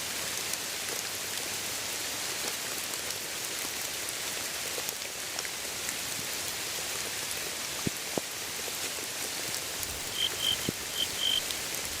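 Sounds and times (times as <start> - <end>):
steady rain falling: 0.0 - 12.0
heavy raindrops ticking: 9.6 - 12.0
short high chirps: 9.9 - 11.8.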